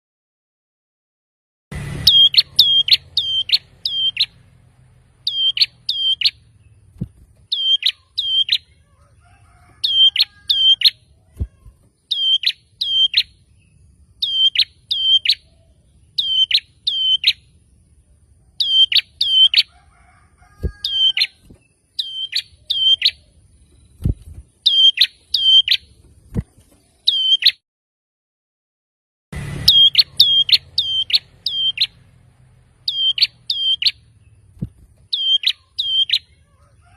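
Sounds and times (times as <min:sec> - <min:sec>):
bird sharp chirps: 0:01.9 - 0:04.5, 0:05.2 - 0:09.0, 0:09.6 - 0:17.8, 0:18.5 - 0:19.8, 0:20.4 - 0:27.6, 0:29.6 - 0:36.9.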